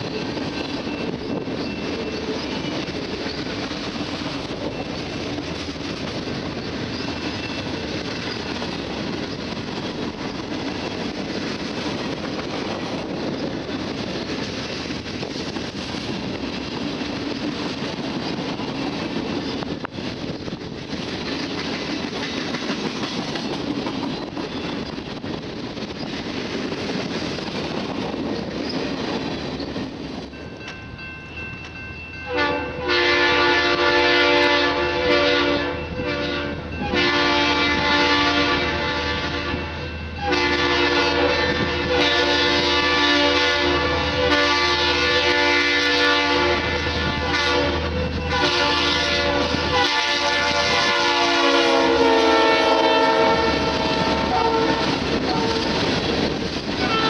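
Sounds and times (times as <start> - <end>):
freight train wheels clacking: 0.0 - 57.0
locomotive air horn: 32.3 - 55.8, 56.8 - 57.0.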